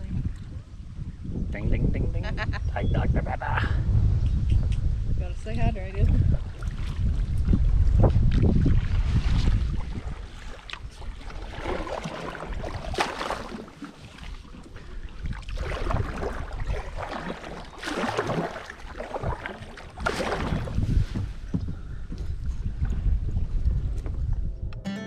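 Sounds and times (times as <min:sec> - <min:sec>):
kayak paddle splashing: 0:06.0 - 0:21.6.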